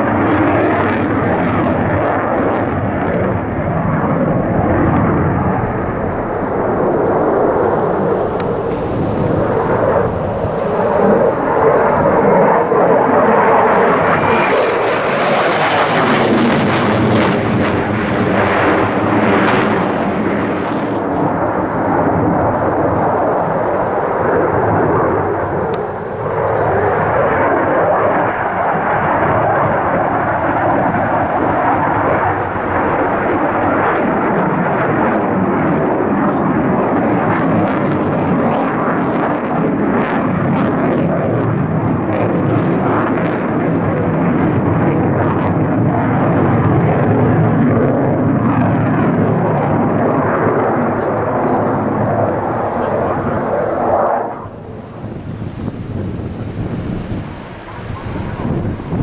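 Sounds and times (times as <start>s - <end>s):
aircraft engine flying past: 0.0s - 59.0s.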